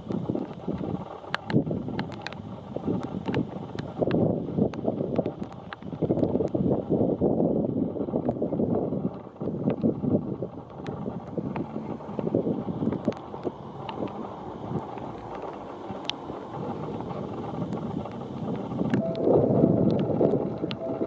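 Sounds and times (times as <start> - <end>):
rain ticks: 0.0 - 21.0
wind gusting against microphone: 0.0 - 21.0
steady tone: 18.4 - 21.0.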